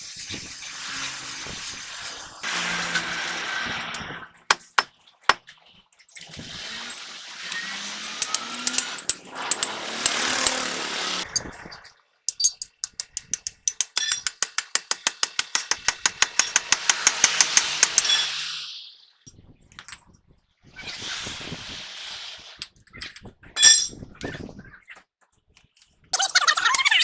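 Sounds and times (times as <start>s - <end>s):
power tool hissing: 0.0s - 4.2s, 6.4s - 11.3s, 14.8s - 19.0s
impact wrench hammering: 4.4s - 5.4s, 8.0s - 11.3s, 12.3s - 18.3s.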